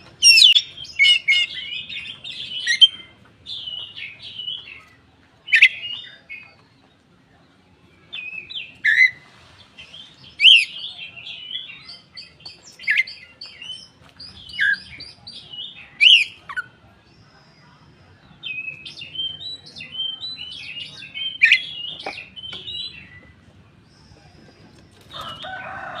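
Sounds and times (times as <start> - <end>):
songbird chirping and whistling: 0.2 - 4.8, 5.5 - 6.6, 8.0 - 9.2, 9.8 - 16.7, 18.2 - 23.4.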